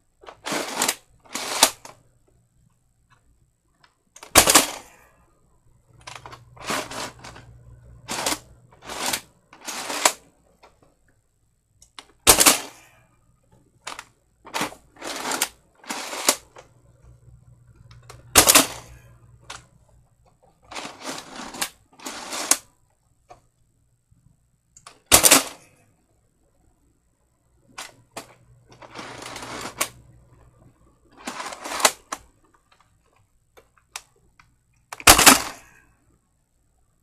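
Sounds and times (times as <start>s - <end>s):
toy blaster shots: 4.3s - 4.9s, 12.2s - 12.8s, 25.1s - 25.6s, 35.0s - 35.6s
toy blaster plastic clacks: 24.8s - 25.6s, 31.2s - 32.9s, 34.9s - 35.7s.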